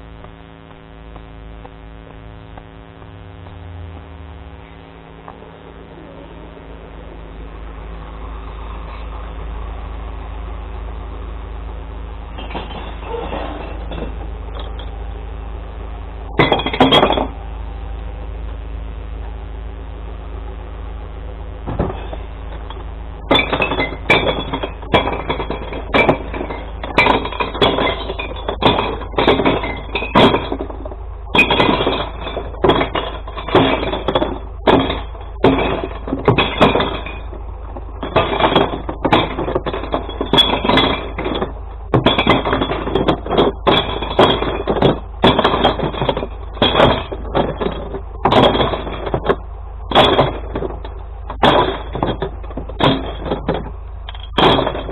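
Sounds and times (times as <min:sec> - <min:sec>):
truck engine running: 0:00.0 - 0:54.9
glass bottles crashing and clinking: 0:12.4 - 0:14.8, 0:16.4 - 0:17.4, 0:23.3 - 0:54.9.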